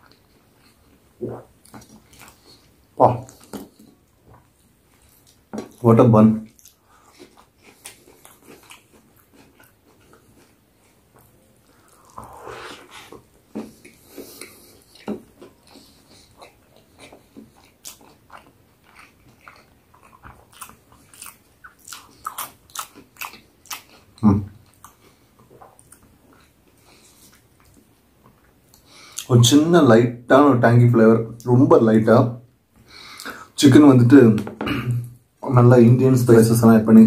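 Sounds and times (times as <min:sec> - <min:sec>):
crunchy chewing: 0:06.5 - 0:29.3.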